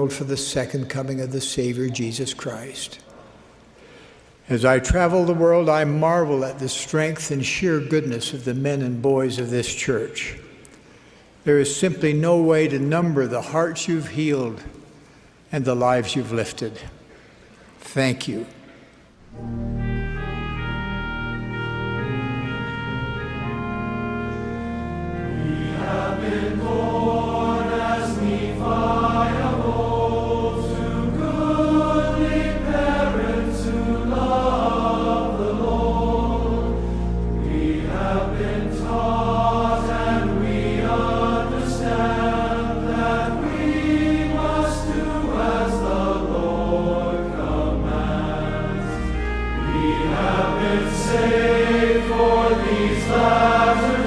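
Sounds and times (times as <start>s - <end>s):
organ chords: 19.2s - 54.0s
choir singing: 19.8s - 54.0s.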